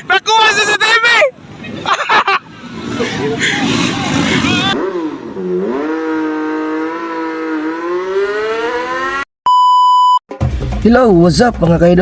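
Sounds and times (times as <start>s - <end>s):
dirt bike engine revving: 3.6s - 9.2s.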